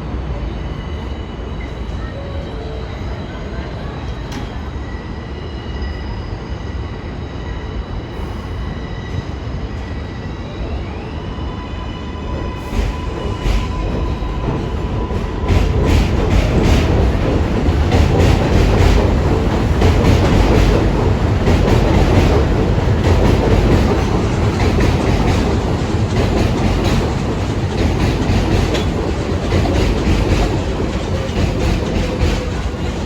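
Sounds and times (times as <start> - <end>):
subway train rumbling: 0.0 - 33.0
wheels clacking over rail joints: 13.4 - 33.0.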